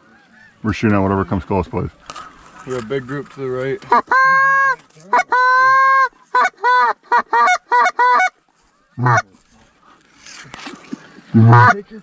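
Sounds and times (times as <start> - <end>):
goose call honking: 3.9 - 8.4, 9.0 - 9.2, 11.3 - 11.9.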